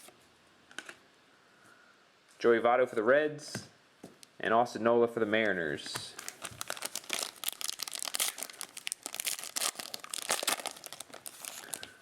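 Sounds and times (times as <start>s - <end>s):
card pack wrapper tearing and crinkling: 6.1s - 12.0s.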